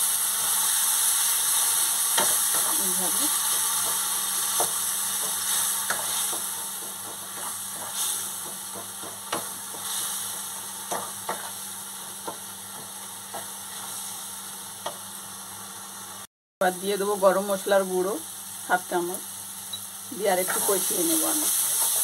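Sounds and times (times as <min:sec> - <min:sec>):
spice paste sizzling: 0:00.0 - 0:22.0
spatula knocking on pan: 0:03.8 - 0:10.1, 0:10.9 - 0:11.5.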